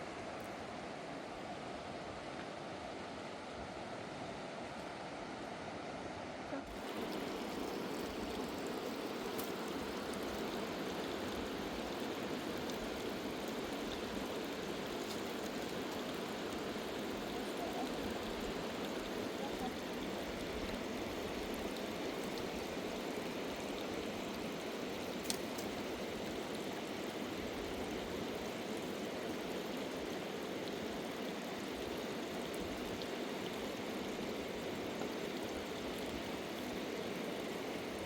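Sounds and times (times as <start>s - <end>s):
rushing river water: 0.0s - 38.0s.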